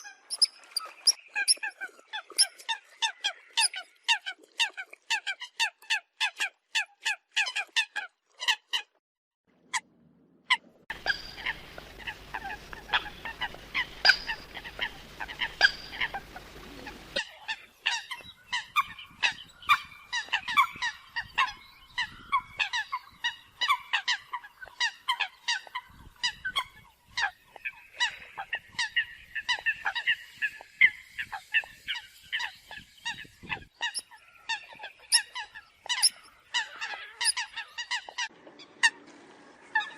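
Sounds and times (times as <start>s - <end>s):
coots honking calls: 10.9s - 17.2s
steady low hum: 10.9s - 17.2s.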